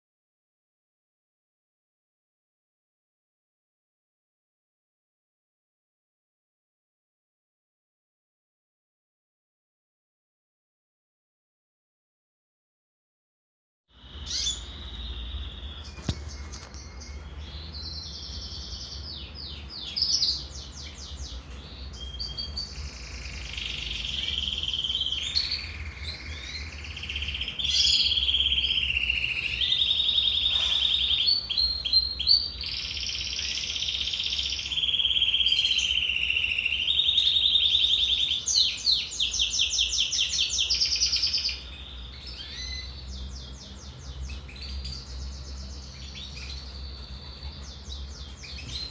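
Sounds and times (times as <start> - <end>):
canary singing trills: 13.9 - 48.9.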